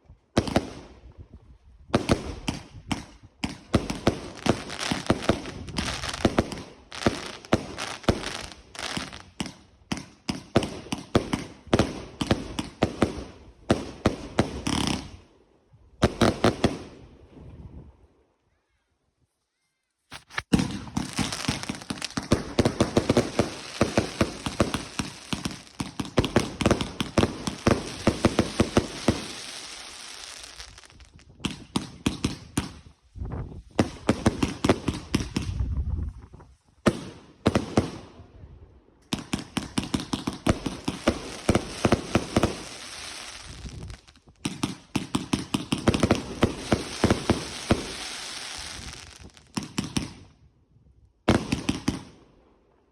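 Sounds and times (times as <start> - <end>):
fireworks crackling bangs: 2.0 - 15.2, 20.1 - 32.9, 39.1 - 50.2.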